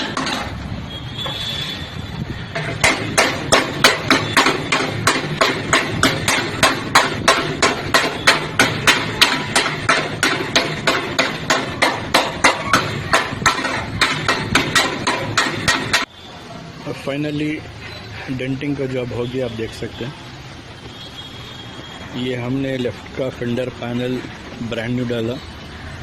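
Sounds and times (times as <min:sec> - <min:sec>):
hammer on sheet metal: 0:02.5 - 0:16.1.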